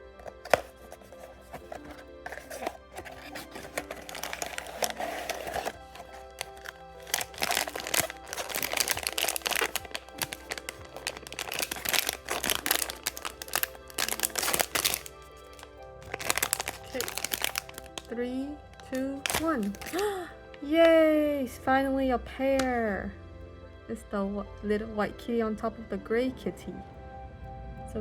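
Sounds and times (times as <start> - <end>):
background music: 0.0 - 28.0
plastic wrap crinkling: 0.2 - 21.0.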